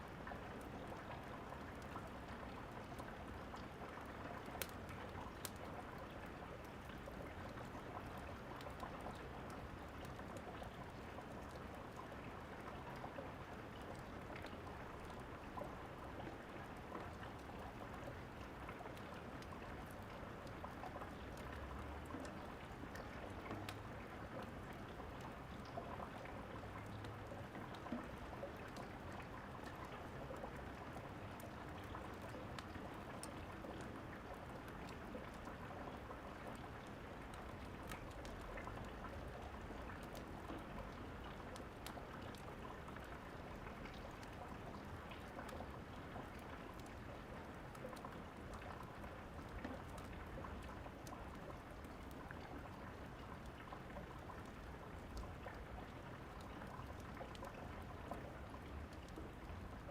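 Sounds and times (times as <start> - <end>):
fireplace crackling and popping: 2.5 - 12.0, 36.3 - 47.1, 47.8 - 52.8, 54.4 - 57.9.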